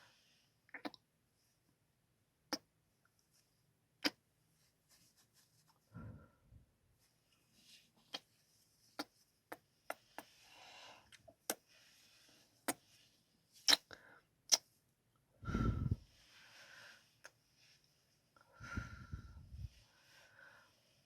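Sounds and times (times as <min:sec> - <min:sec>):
soft breaths: 0:04.6 - 0:14.4, 0:15.4 - 0:21.0
lip smacks and kisses: 0:13.6 - 0:13.9, 0:14.5 - 0:14.7.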